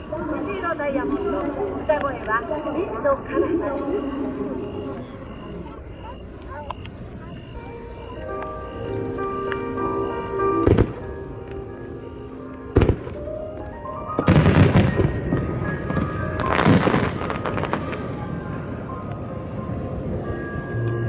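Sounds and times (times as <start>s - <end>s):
music: 0.0s - 21.0s
crackling firework bursts: 12.4s - 21.0s
fireworks booms: 12.5s - 20.6s.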